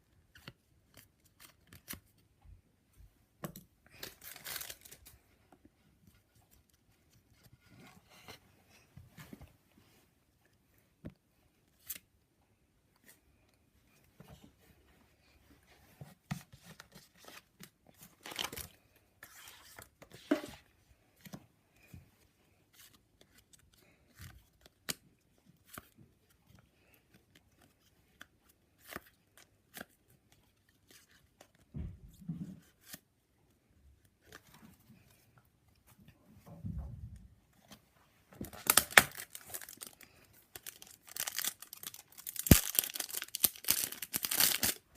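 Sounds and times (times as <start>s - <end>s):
card packets tearing and crinkling: 3.9s - 5.0s, 38.6s - 44.9s.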